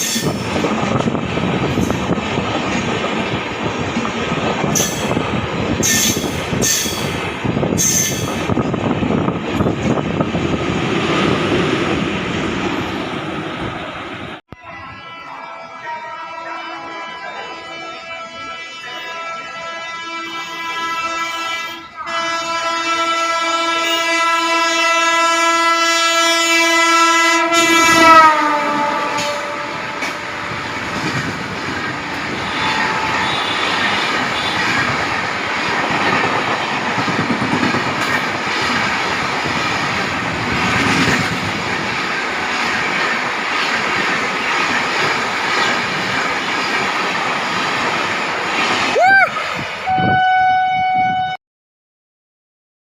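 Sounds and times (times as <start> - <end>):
train wheels clacking over rail joints: 0.0 - 8.8, 29.1 - 48.9
train horn blast: 14.6 - 30.8, 32.1 - 34.9, 49.8 - 51.4.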